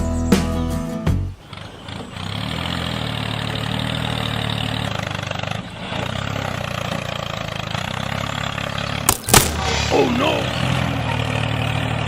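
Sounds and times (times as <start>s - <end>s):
tractor engine idling: 0.1s - 12.0s.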